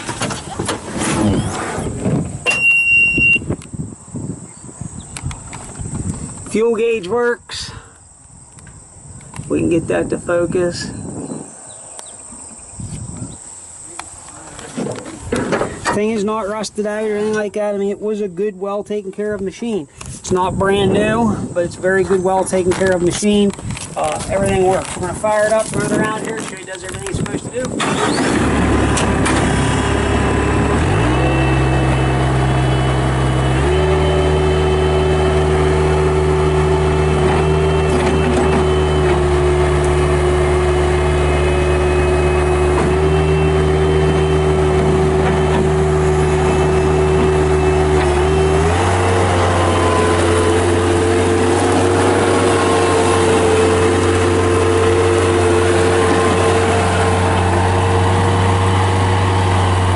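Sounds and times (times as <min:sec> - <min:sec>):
diesel engine running: 0:19.9 - 0:59.9.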